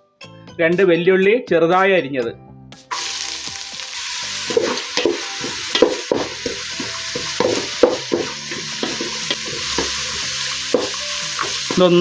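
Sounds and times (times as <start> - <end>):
food sizzling in hot oil: 2.9 - 12.0
spoon scraping a pan: 4.4 - 11.8.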